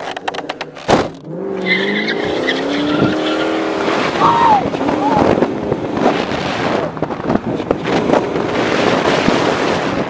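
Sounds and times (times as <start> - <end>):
moving car: 0.0 - 10.0
wind buffeting microphone: 2.2 - 10.0.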